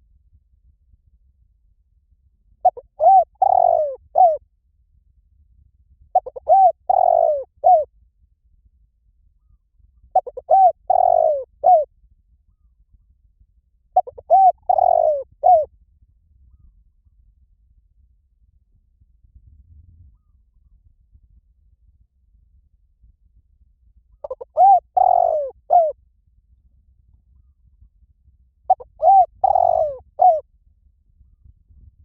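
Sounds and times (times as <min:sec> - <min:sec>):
dove cooing: 0:02.6 - 0:04.4, 0:06.2 - 0:07.9, 0:10.2 - 0:11.9, 0:14.0 - 0:15.7, 0:24.2 - 0:26.0, 0:28.7 - 0:30.4.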